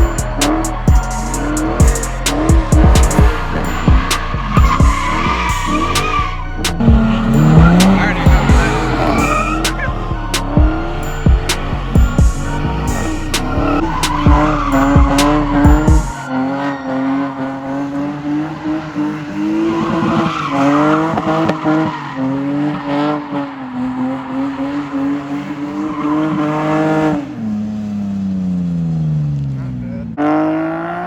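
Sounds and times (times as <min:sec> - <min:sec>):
heavy low thumps: 0:00.0 - 0:05.0, 0:06.4 - 0:12.6, 0:14.1 - 0:16.1
tyres squealing: 0:00.0 - 0:27.0
car engine revving: 0:00.0 - 0:31.0.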